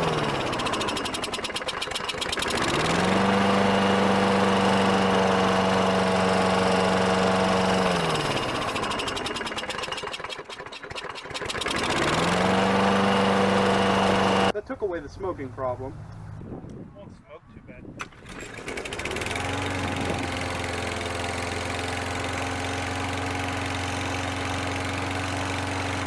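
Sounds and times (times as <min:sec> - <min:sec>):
lawn mower engine running: 0:00.0 - 0:14.5, 0:18.0 - 0:26.0.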